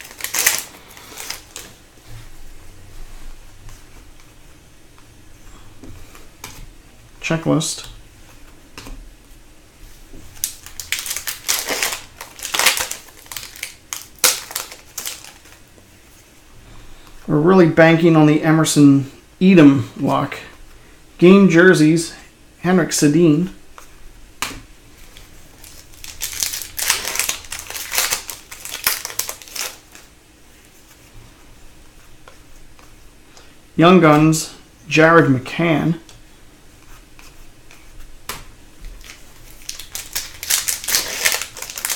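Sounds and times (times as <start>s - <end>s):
foil wrapper crinkling and tearing: 0.0s - 1.7s, 10.4s - 15.6s, 25.6s - 30.1s, 39.0s - 41.9s
cards being handled: 0.0s - 1.8s, 10.1s - 15.6s, 23.7s - 30.1s, 36.8s - 41.9s.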